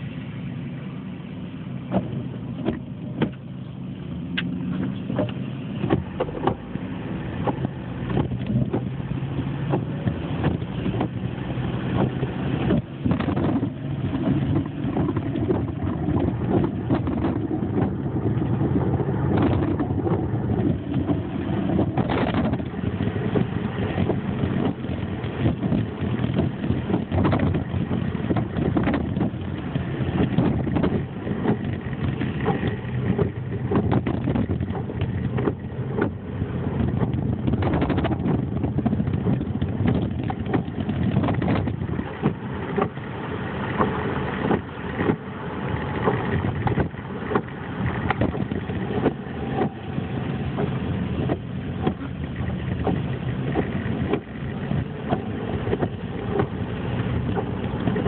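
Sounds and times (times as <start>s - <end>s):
car engine and road noise: 0.0s - 58.0s
small knocks and rattles: 11.9s - 43.0s.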